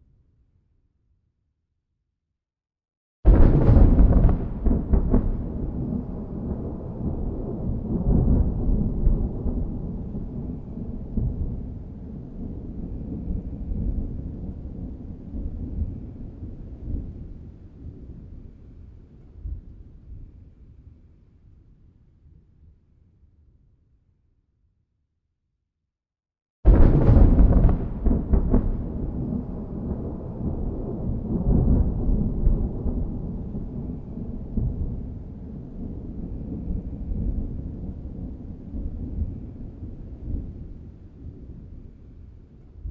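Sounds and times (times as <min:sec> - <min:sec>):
rolling thunder: 0:03.3 - 0:18.3, 0:26.7 - 0:42.9.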